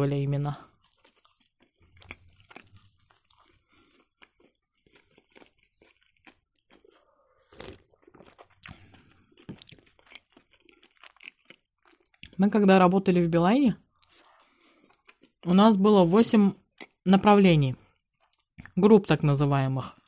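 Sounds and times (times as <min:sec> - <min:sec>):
person chewing pie: 0:00.3 - 0:12.4, 0:13.8 - 0:17.0, 0:17.8 - 0:18.8.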